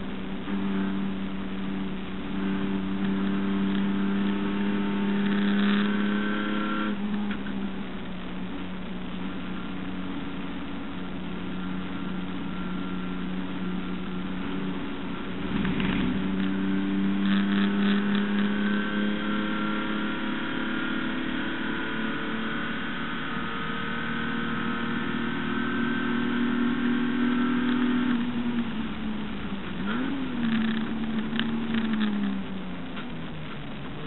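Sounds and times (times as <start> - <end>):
race car engine at high revs: 0.0 - 34.0
clatter: 15.3 - 18.8, 27.4 - 34.0.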